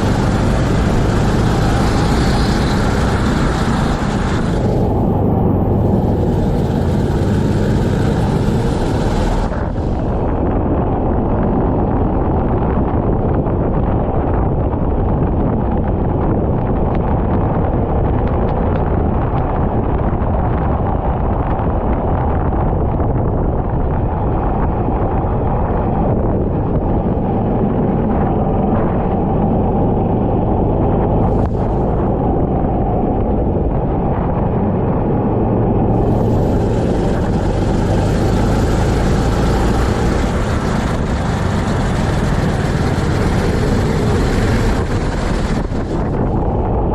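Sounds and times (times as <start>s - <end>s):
kart engine racing: 0.0s - 10.7s, 35.1s - 46.9s
wind buffeting microphone: 0.0s - 46.9s.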